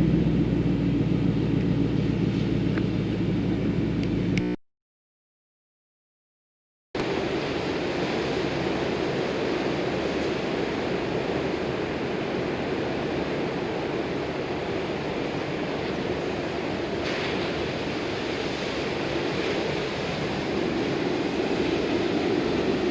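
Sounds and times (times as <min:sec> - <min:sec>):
car engine running: 0:00.0 - 0:04.6
constant rushing noise: 0:07.0 - 0:22.9.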